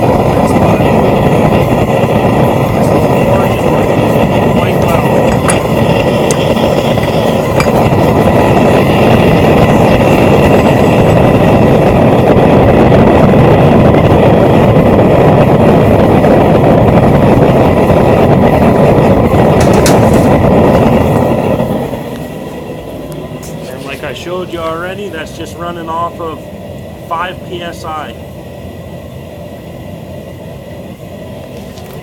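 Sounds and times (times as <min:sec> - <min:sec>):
gas burner flame rushing: 0:00.0 - 0:32.0.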